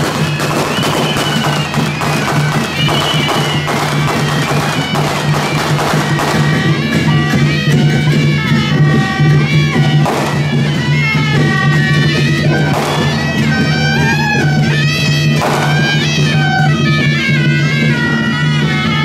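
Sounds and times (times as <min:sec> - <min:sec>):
clattering drums and cymbals: 0:00.0 - 0:19.0
shrill double-reed horns: 0:00.0 - 0:19.0.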